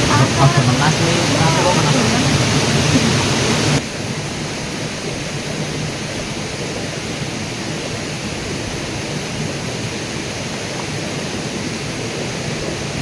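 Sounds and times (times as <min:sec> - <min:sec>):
water rushing: 0:00.0 - 0:03.8.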